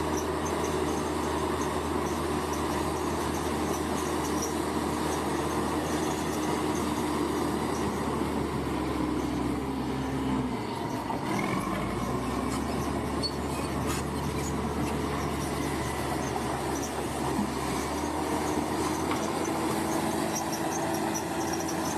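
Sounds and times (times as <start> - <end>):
bulldozer diesel engine: 0.0 - 21.9
faint high squeals: 8.8 - 21.9.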